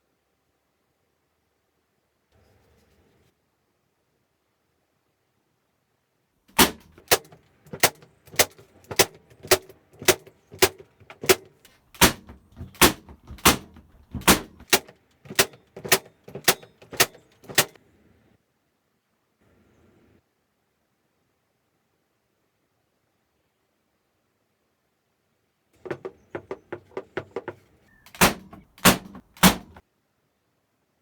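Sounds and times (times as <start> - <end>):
hammer driving nails into wood: 6.5 - 17.8, 25.8 - 29.8.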